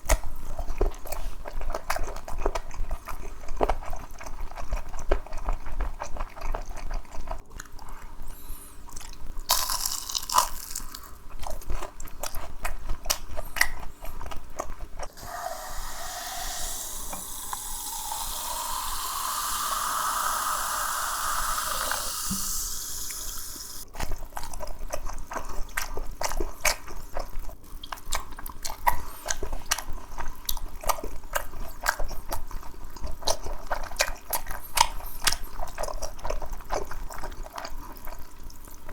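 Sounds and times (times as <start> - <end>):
chewing food: 0.0 - 38.9
wet mouth clicks: 11.6 - 29.9
drink poured into a glass: 15.2 - 23.8.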